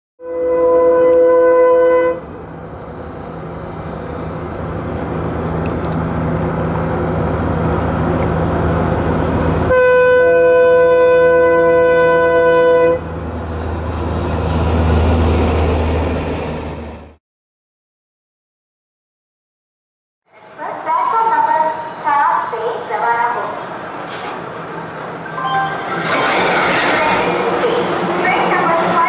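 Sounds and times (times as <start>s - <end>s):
train horn blast: 0.2s - 2.3s, 9.7s - 13.1s
deep rumble of train on bridge: 0.2s - 17.2s, 20.3s - 29.0s
diesel locomotive engine: 0.2s - 17.2s, 20.3s - 29.0s.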